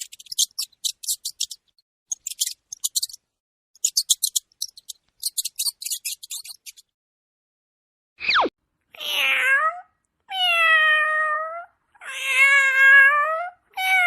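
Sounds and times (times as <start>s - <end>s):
mouse squeaking: 0.0s - 3.2s, 3.8s - 7.0s.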